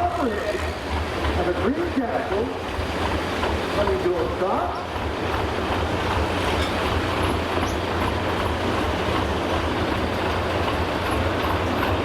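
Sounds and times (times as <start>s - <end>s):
heavy diesel engine rumbling: 0.0s - 12.0s.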